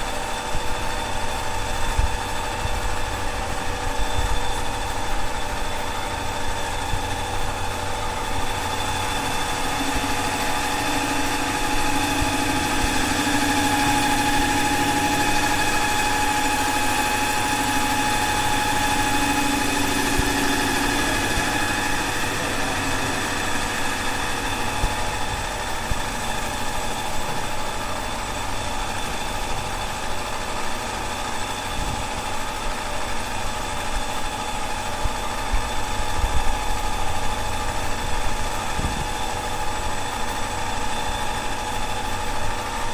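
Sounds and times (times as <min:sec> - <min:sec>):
motor whining: 0:04.0 - 0:30.4.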